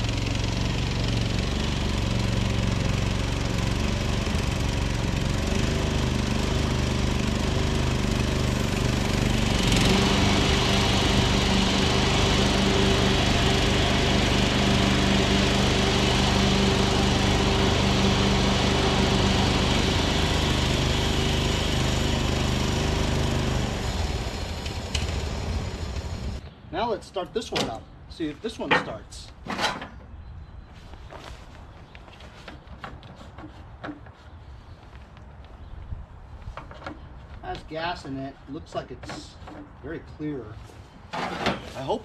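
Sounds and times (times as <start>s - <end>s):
small tractor engine running: 0.0s - 26.4s.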